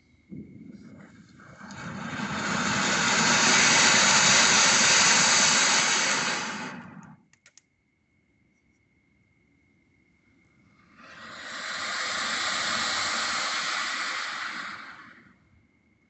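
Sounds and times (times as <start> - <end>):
loud rushing noise: 1.8 - 7.0, 11.0 - 15.2
faint clicks: 6.8 - 7.7.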